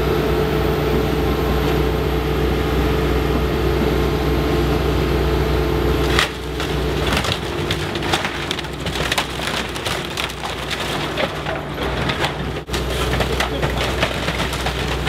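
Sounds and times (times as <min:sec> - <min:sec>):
heavy engine hum: 0:00.0 - 0:15.0
building materials crunching and splintering: 0:06.0 - 0:15.0.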